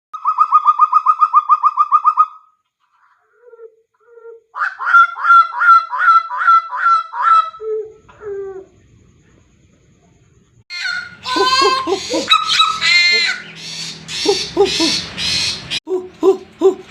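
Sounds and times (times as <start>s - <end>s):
bird calling: 0.2s - 9.4s, 10.7s - 16.9s.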